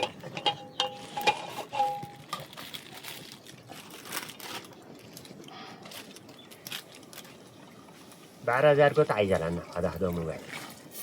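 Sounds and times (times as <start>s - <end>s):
crinkling and rustling: 0.0s - 8.4s.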